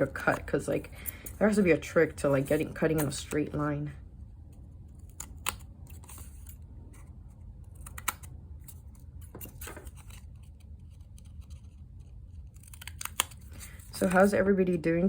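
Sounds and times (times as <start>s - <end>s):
scissors cutting paper: 0.0s - 3.6s, 7.7s - 14.3s.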